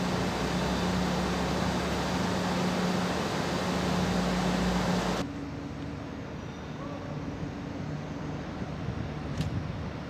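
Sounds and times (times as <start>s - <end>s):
passenger train rushing past: 0.0s - 5.2s.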